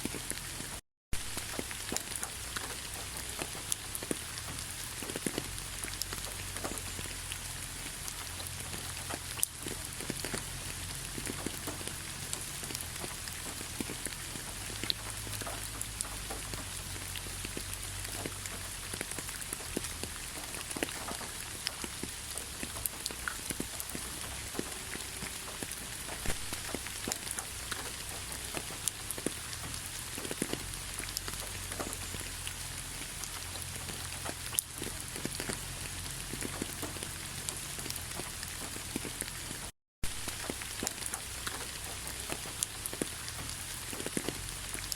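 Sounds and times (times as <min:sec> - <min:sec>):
raindrops ticking on surfaces: 0:00.0 - 0:44.9
steady rainfall: 0:00.0 - 0:44.9.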